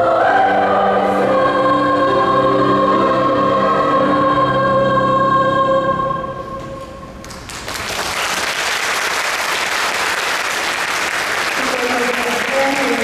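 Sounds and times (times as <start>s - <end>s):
choir holding a chord: 0.0s - 7.2s
audience applause: 7.3s - 13.0s.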